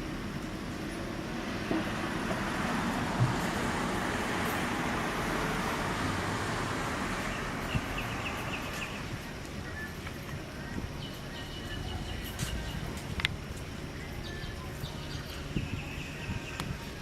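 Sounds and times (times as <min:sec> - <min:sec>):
road traffic passing: 0:00.0 - 0:17.0
bird chirping: 0:07.2 - 0:09.9, 0:10.8 - 0:13.2, 0:13.9 - 0:17.0.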